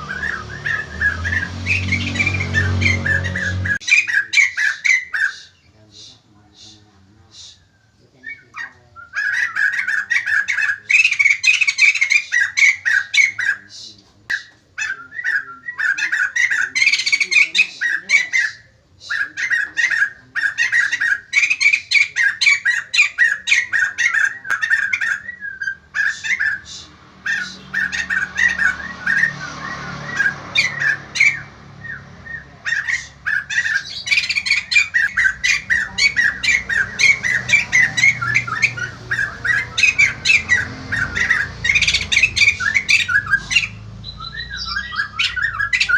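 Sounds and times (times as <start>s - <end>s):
bird chattering calls: 0.0s - 45.9s.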